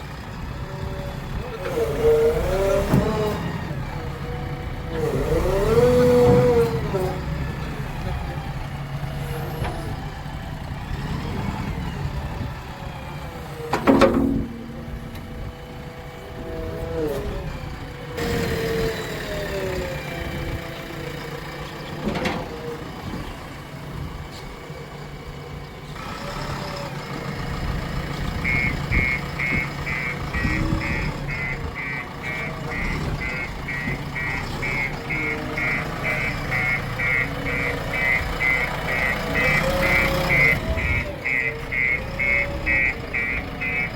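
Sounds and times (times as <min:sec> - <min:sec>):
diesel engine working: 0:00.0 - 0:43.9
reversing alarm beeping: 0:28.4 - 0:43.9.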